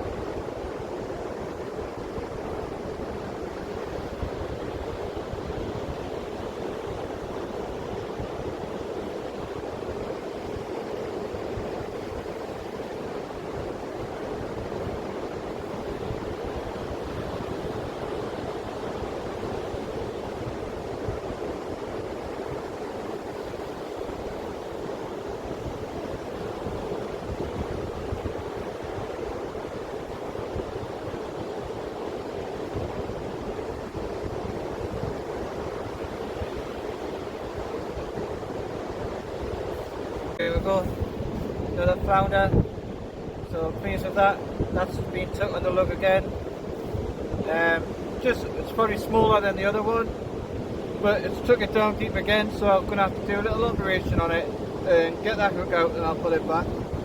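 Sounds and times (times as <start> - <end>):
sea surf breaking on a beach: 0.0 - 57.0
wind rumbling on microphone: 0.0 - 57.0.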